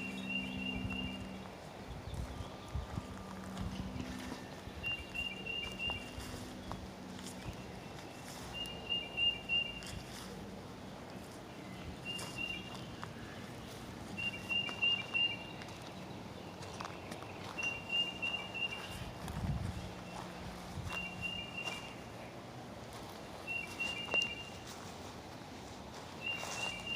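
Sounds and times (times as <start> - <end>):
light footsteps or twig clicks: 0.9 - 8.8, 9.4 - 22.0.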